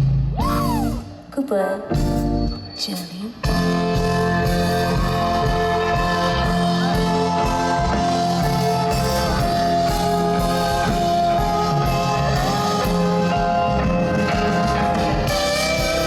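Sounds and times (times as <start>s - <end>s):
bass line: 0.0s - 1.2s, 2.0s - 2.6s, 3.4s - 16.0s
electric guitar sliding notes: 3.4s - 16.0s.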